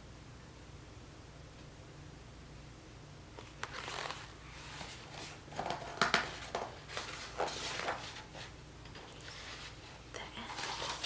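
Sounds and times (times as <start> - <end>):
picture book pages turning: 3.4 - 11.0.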